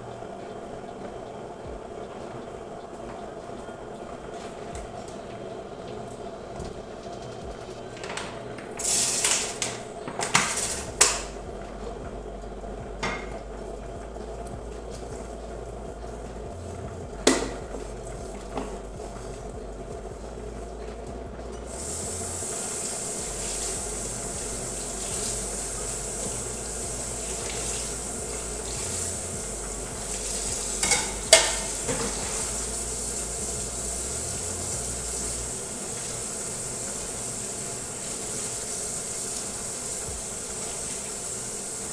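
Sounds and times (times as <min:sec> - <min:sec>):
steady hiss: 0:00.0 - 0:41.9
dishes and cutlery clattering: 0:07.9 - 0:11.3, 0:30.7 - 0:32.5.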